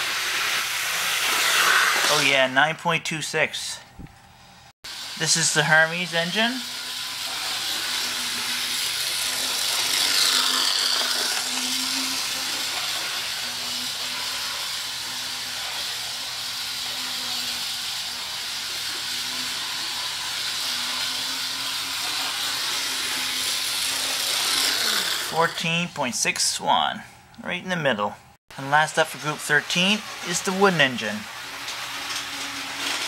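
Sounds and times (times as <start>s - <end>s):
model train motor hum: 4.9s - 25.8s, 29.2s - 33.0s.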